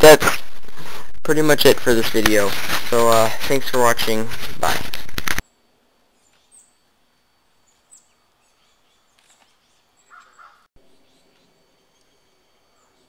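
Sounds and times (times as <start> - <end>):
faint bird chirps: 7.5 - 13.0.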